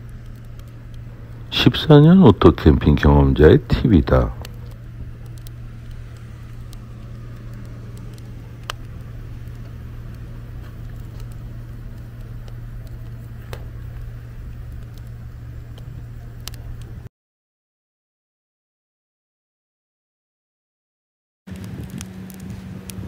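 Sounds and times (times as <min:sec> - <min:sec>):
firewood crackling: 0:00.0 - 0:17.1, 0:21.5 - 0:23.0
steady low hum: 0:00.0 - 0:17.1, 0:21.5 - 0:23.0
sharp fire pops: 0:03.7 - 0:17.1, 0:21.5 - 0:23.0.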